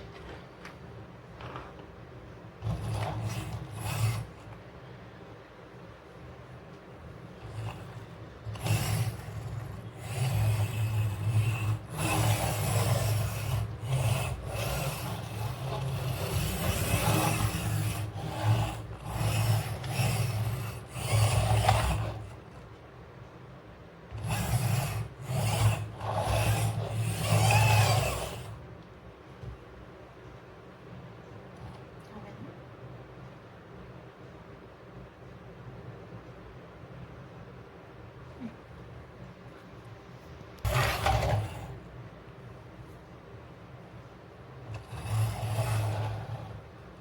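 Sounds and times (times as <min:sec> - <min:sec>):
toy wheels scraping on hard surface: 0:02.6 - 0:04.6, 0:07.2 - 0:22.6, 0:24.1 - 0:28.6, 0:40.6 - 0:41.9, 0:44.6 - 0:47.0.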